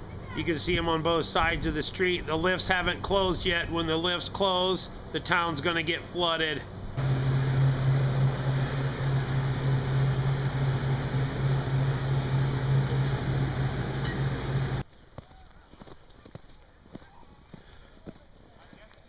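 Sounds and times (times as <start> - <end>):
machine hum with low drone: 6.6 - 14.8.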